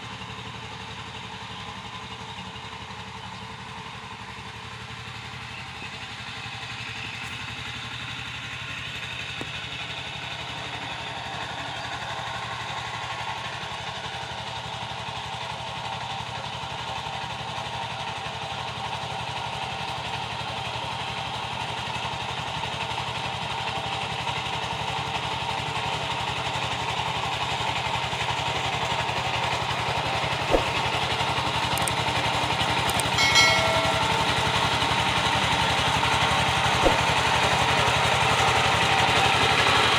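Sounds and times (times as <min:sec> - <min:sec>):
diesel engine running: 0:00.0 - 0:23.9
sharp click: 0:30.5 - 0:30.8, 0:31.8 - 0:32.0, 0:32.9 - 0:34.6, 0:36.8 - 0:37.1
short high-pitched tone: 0:32.9 - 0:34.9.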